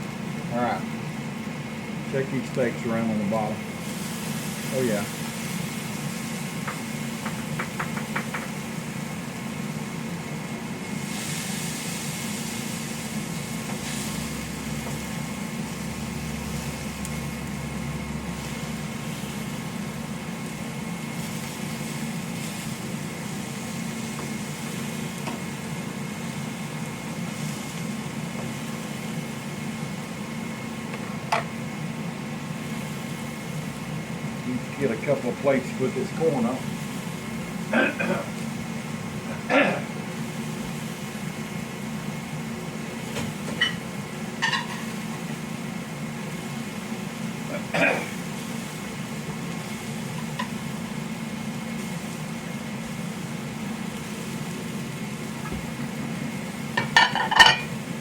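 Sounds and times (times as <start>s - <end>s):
steady mechanical hum: 0.0s - 58.0s
hiss: 3.8s - 8.6s, 10.8s - 17.1s.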